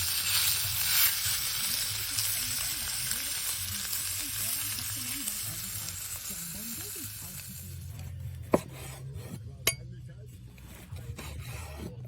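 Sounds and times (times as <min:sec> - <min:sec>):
steak sizzling over fire: 0:00.0 - 0:08.0.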